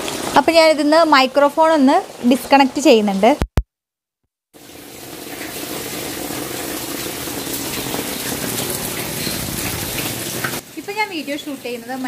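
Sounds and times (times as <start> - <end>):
heavy rain hissing: 4.6 - 12.0.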